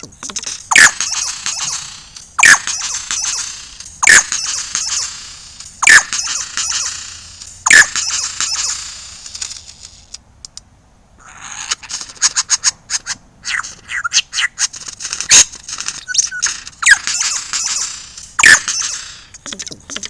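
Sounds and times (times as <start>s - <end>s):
lyrebird calling: 0.0s - 5.2s, 5.8s - 7.0s, 7.7s - 8.8s, 11.2s - 20.0s.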